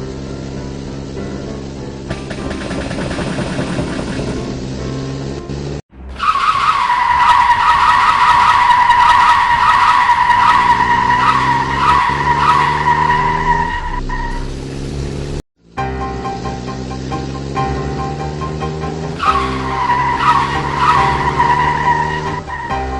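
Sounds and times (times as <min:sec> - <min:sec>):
car engine running: 0:00.0 - 0:22.9
car tyre screech: 0:06.0 - 0:14.8, 0:18.9 - 0:22.9.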